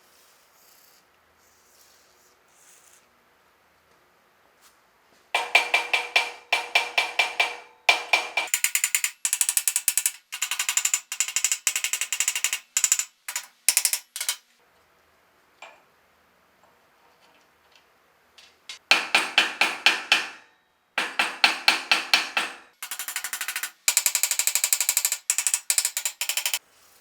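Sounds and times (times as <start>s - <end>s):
rapid metallic clicking: 5.4s - 14.4s, 21.0s - 26.6s.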